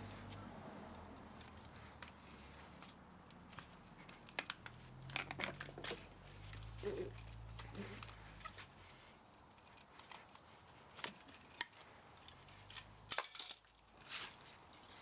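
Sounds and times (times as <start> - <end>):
metal tools clicking and tapping: 3.5 - 8.6, 11.0 - 15.0.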